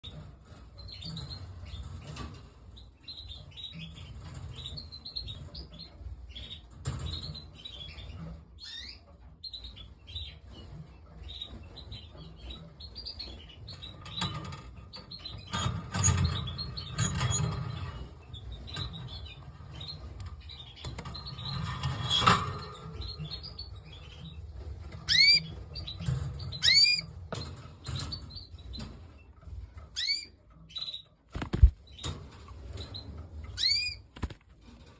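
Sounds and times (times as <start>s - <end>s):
canaries chirping: 0.0s - 34.9s.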